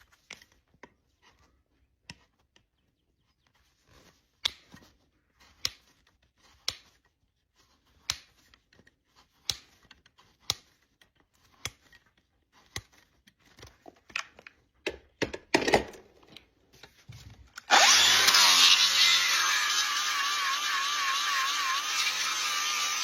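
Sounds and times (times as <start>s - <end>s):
sharp clicks of hoof trimming: 0.0s - 14.4s, 17.6s - 23.0s
power tool whining: 17.6s - 23.0s.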